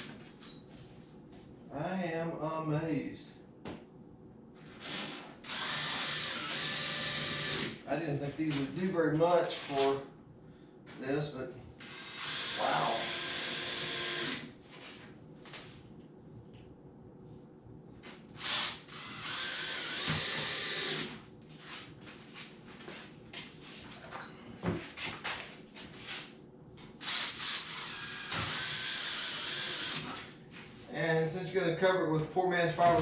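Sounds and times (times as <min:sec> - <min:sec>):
power drill driving screws: 0:04.8 - 0:07.8, 0:11.8 - 0:14.5, 0:18.4 - 0:21.2, 0:27.0 - 0:30.3.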